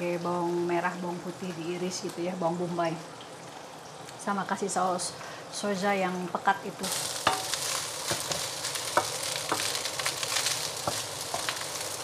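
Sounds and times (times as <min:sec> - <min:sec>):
rice sizzling in a pan: 0:05.6 - 0:12.0.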